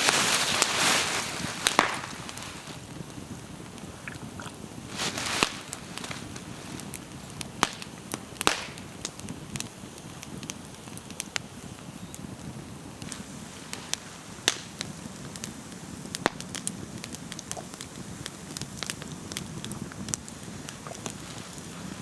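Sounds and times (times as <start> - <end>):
wood popping: 0.0 - 3.0, 3.7 - 9.2
campfire crackling: 0.0 - 22.0.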